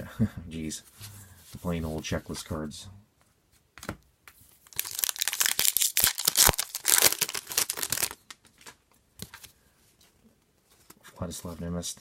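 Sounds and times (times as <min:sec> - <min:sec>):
wrapper tearing and crinkling: 0:04.6 - 0:08.8.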